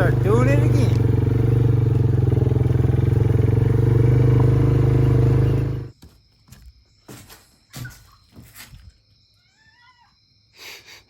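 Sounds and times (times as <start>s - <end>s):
engine idling: 0.0s - 5.9s.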